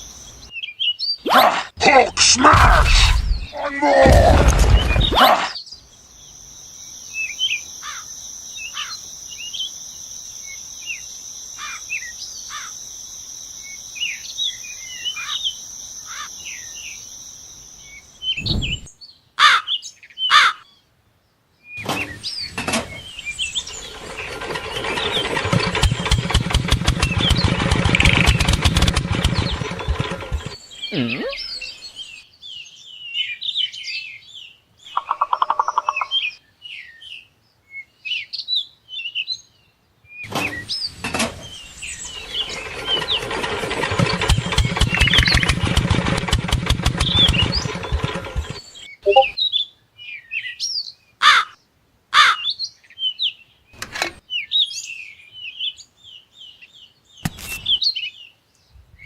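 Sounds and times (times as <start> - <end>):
birds chirping: 0.0 - 20.8, 21.7 - 37.3, 40.1 - 49.6
small motor rattling: 22.4 - 30.6, 40.4 - 48.7
sharp clicks: 24.8 - 30.6, 43.9 - 49.3.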